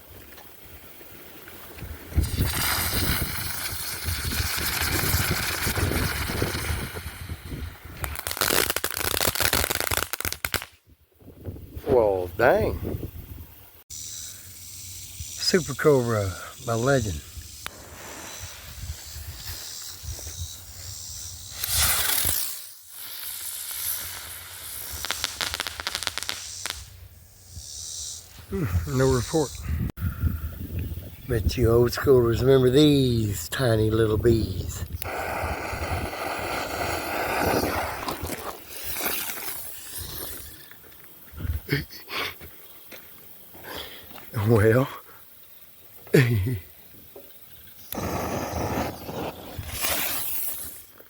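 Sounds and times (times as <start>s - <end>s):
firework crackling: 2.0s - 10.8s, 17.6s - 20.5s, 21.4s - 27.2s, 35.0s - 40.8s, 47.8s - 51.0s
firework hiss of spraying sparks: 2.1s - 10.8s, 13.5s - 28.4s, 35.0s - 40.7s, 47.5s - 51.0s.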